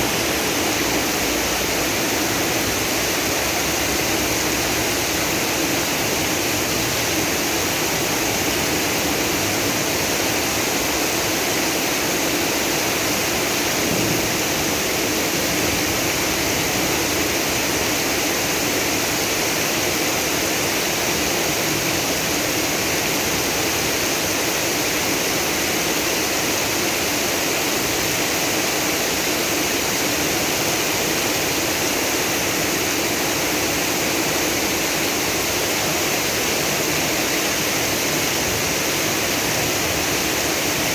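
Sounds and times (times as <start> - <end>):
heavy rain downpour: 0.0 - 40.9
rainwater rushing in street: 0.0 - 40.9.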